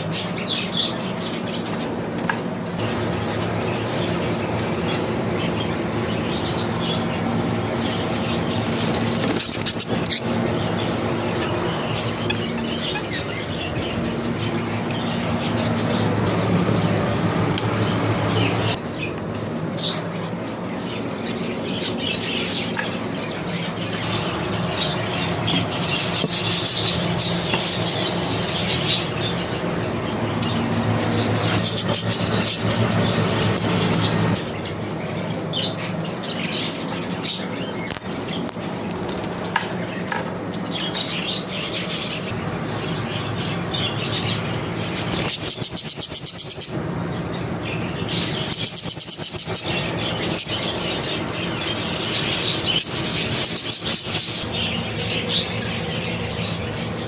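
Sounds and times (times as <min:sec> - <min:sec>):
budgerigars chirping: 0:07.8 - 0:18.8, 0:40.7 - 0:57.0.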